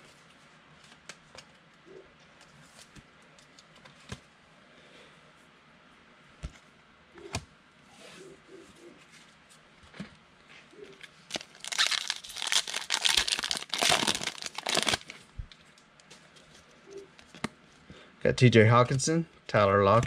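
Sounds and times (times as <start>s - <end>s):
foil wrapper tearing and crinkling: 11.3s - 15.2s.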